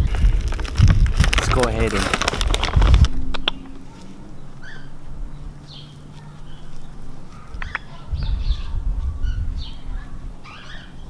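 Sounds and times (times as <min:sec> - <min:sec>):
low rumble: 0:00.0 - 0:10.5
birds chirping: 0:01.5 - 0:11.0
sharp clicks: 0:07.5 - 0:07.9.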